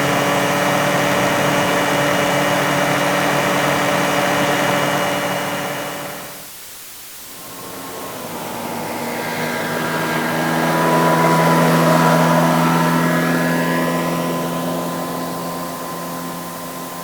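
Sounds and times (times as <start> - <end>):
motorcycle engine running: 0.0 - 6.4, 7.3 - 17.0
engine rising: 7.2 - 17.0.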